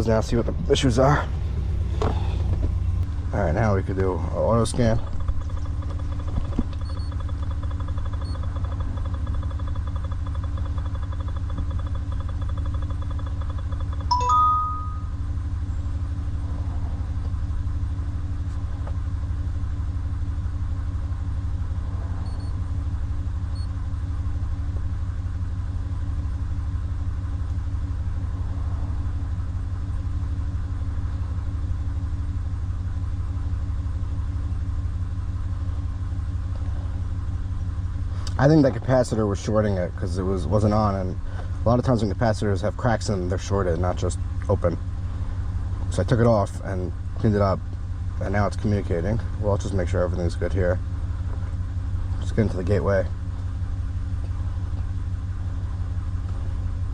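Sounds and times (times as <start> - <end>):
pickup truck idling: 0.0 - 56.9
two-tone electronic chime: 14.1 - 15.2.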